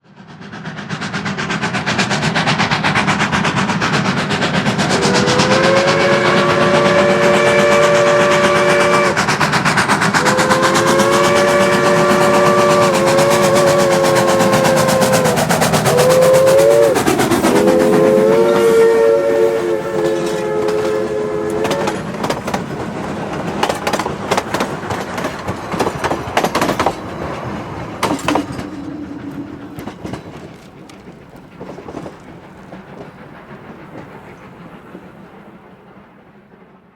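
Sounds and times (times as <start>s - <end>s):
steam locomotive chuffing: 0.0s - 36.9s
train wheels clicking over rail joints: 0.1s - 36.9s.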